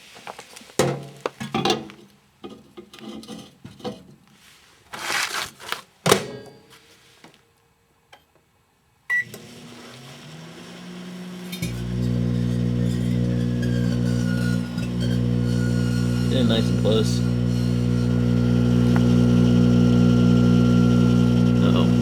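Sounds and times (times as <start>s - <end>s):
microwave oven humming: 9.1s - 22.0s.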